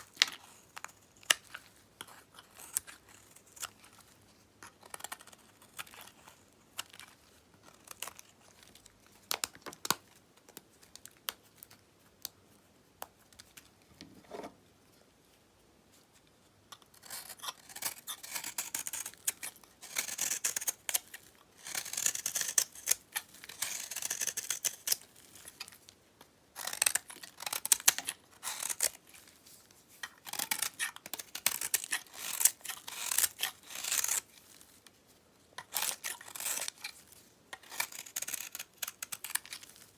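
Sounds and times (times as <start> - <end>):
knife cutting soap: 0.0 - 10.0, 16.7 - 25.8, 26.5 - 29.4, 30.0 - 34.5, 35.6 - 39.9.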